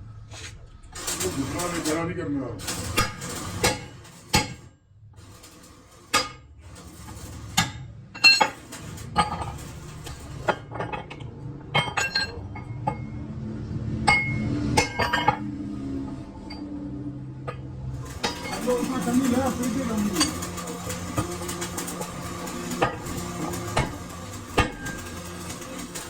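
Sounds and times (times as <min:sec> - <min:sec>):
metal tools clinking: 0:08.2 - 0:11.2, 0:11.8 - 0:13.1, 0:18.0 - 0:26.0.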